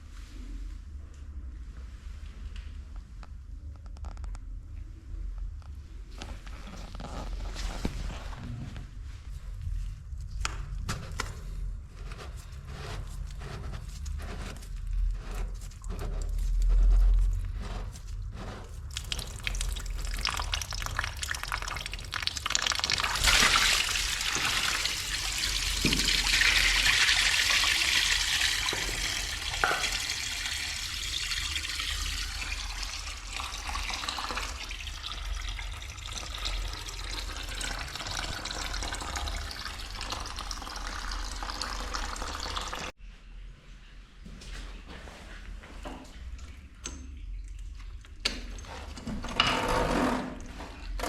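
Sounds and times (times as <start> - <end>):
water rushing and draining: 18.6 - 43.0.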